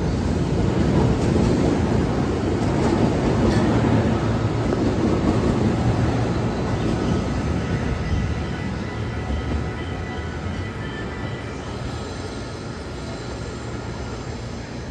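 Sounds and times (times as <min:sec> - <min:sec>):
train wheels rumbling on rail: 0:00.0 - 0:14.9.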